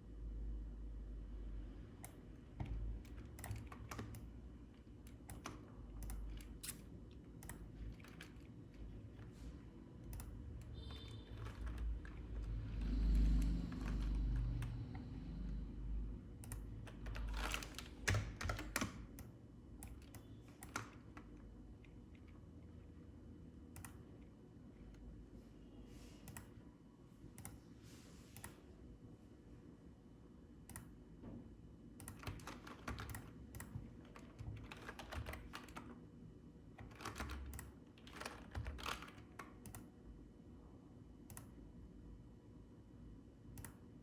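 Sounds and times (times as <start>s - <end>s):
computer keyboard typing: 2.0s - 9.4s, 10.0s - 15.4s, 16.3s - 22.3s, 32.0s - 36.0s, 36.7s - 40.0s.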